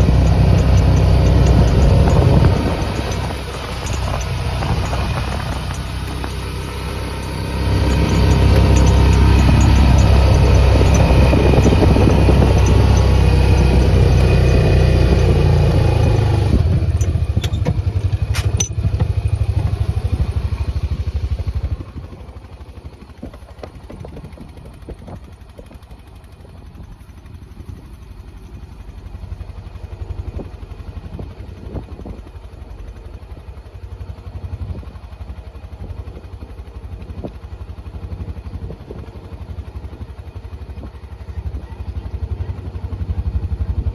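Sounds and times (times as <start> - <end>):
knocks and clatter: 0.0 - 19.6
farm vehicle engine running: 0.0 - 43.9.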